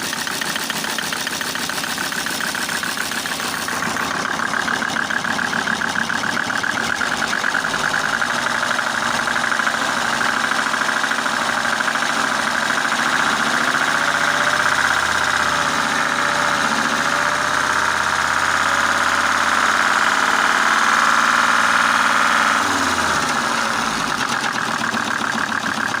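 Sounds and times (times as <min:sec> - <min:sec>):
diesel engine knocking roughly: 0:00.0 - 0:26.0.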